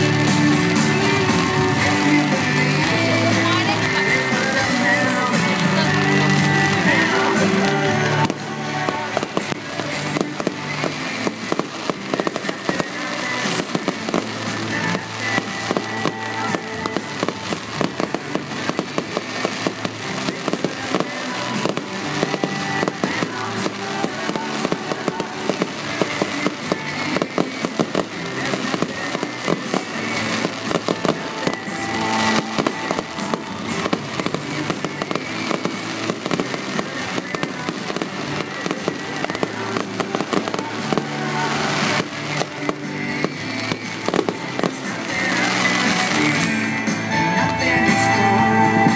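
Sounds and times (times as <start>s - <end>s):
fireworks popping and banging: 0.0s - 48.9s
music with sustained tones: 0.0s - 48.9s.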